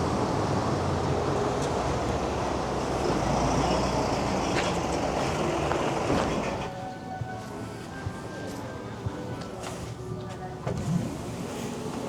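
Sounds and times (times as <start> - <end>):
vehicle engine and tyres: 0.0 - 6.7.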